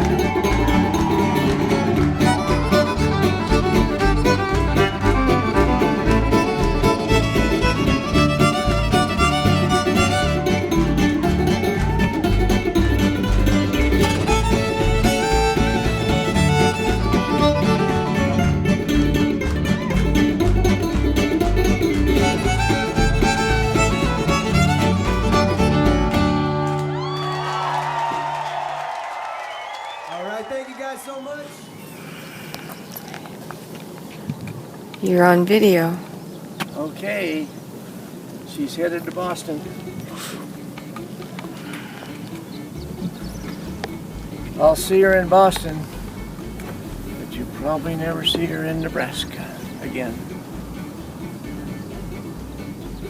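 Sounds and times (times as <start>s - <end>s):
bluegrass fiddle and guitar: 0.0s - 27.2s, 37.8s - 53.0s.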